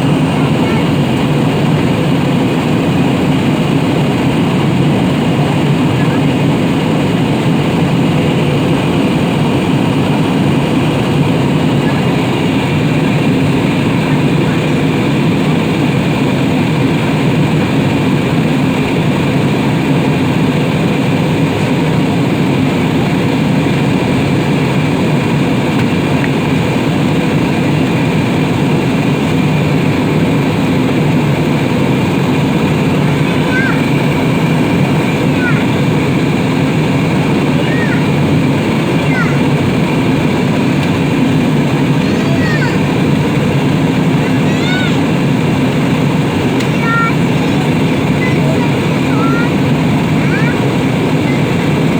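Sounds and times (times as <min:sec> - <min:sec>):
airliner engines roaring in cabin: 0:00.0 - 0:51.9.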